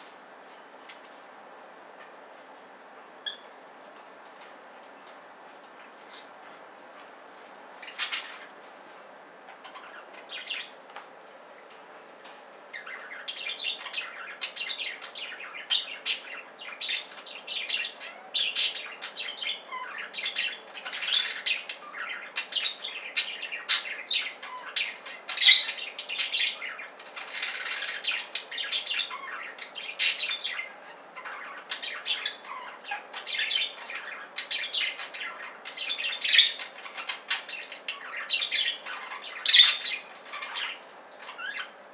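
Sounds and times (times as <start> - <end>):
budgies chattering: 7.8 - 8.5, 9.5 - 10.8, 12.7 - 41.8.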